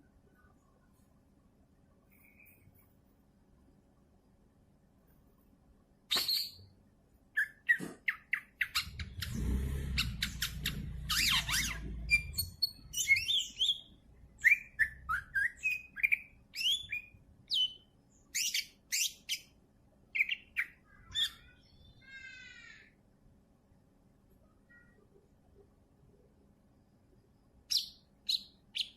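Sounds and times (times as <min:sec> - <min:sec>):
bird chirping and whistling: 0:06.1 - 0:06.6, 0:07.4 - 0:09.2, 0:10.0 - 0:17.8, 0:18.4 - 0:19.4
low rumble: 0:08.8 - 0:12.9.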